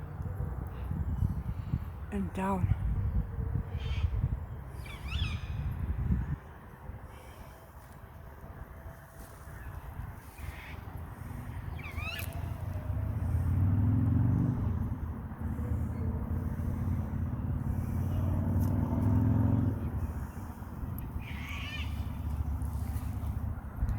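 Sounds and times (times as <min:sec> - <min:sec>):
vehicle engine running: 0:09.1 - 0:23.9.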